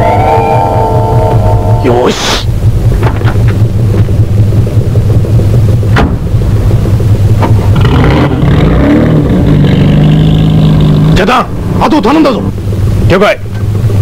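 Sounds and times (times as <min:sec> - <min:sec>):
car engine revving: 0:02.4 - 0:13.1.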